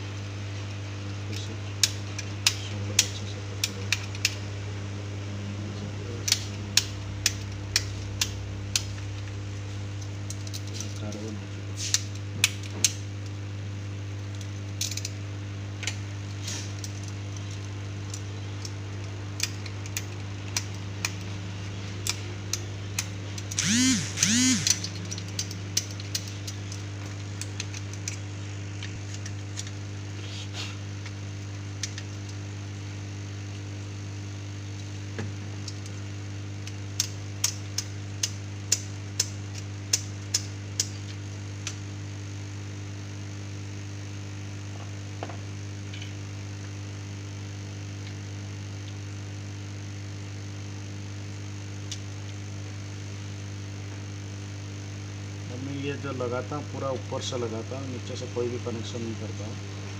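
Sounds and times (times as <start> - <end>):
electrical hum: 0.0 - 59.9
hand tools clicking and tapping: 22.0 - 26.8.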